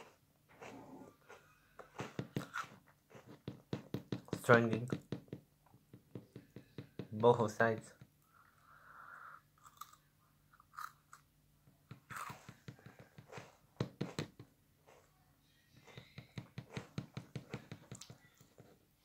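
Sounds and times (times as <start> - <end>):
crunchy biscuit chewing: 0.0 - 3.4, 9.6 - 11.3, 11.9 - 13.6.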